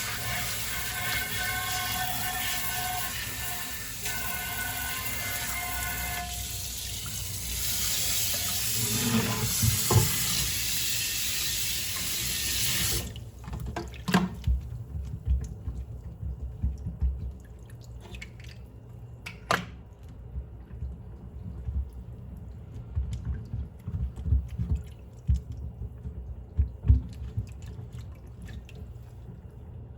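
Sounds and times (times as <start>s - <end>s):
tap running water into sink: 0.0s - 18.2s.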